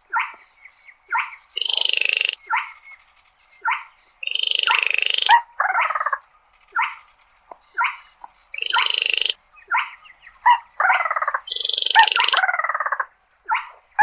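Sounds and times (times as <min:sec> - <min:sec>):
bird calling short sharp notes: 0:01.6 - 0:02.4, 0:04.2 - 0:05.4, 0:08.6 - 0:09.4, 0:11.5 - 0:12.4
frog-like rattling trill: 0:01.6 - 0:02.4, 0:04.2 - 0:06.0, 0:08.6 - 0:09.4, 0:11.4 - 0:12.9.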